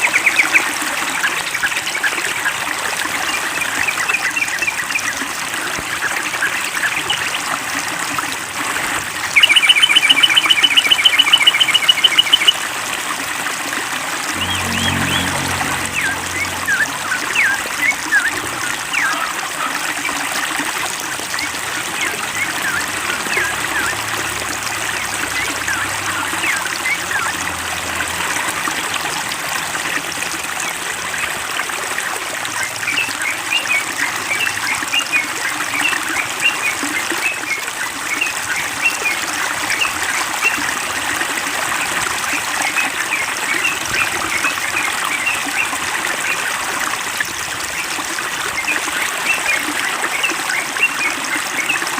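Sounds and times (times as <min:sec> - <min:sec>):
water trickling: 0:00.0 - 0:51.9
small birds chirping: 0:09.4 - 0:12.6.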